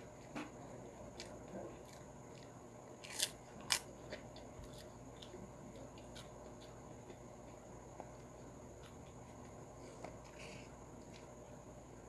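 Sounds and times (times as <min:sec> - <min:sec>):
crackling chewing: 0:00.1 - 0:11.6
prawn cracker crunching: 0:01.1 - 0:06.8.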